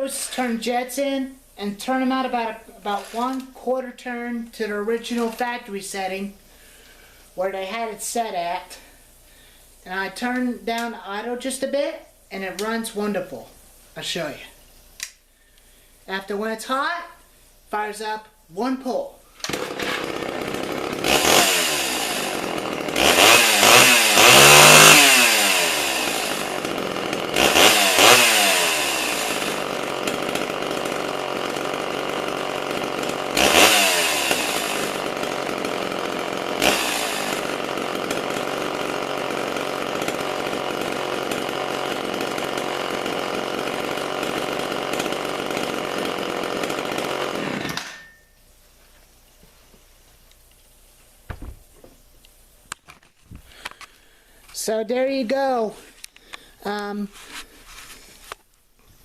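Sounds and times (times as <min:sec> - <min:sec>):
chainsaw idling and revving: 0:00.0 - 0:06.1, 0:19.4 - 0:48.3.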